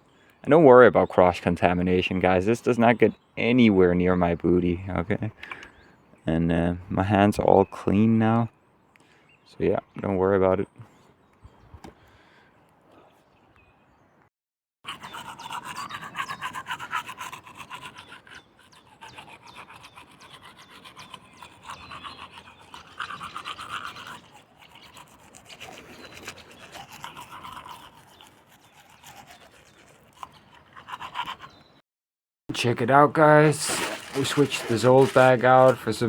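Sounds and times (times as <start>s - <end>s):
toothbrush scrubbing teeth: 14.9s - 31.6s, 33.6s - 36.0s.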